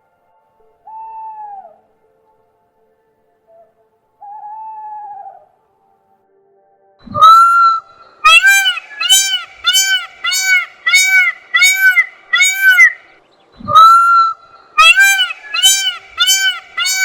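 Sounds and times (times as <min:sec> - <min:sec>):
animal honking call: 0:07.2 - 0:13.0, 0:13.7 - 0:17.0.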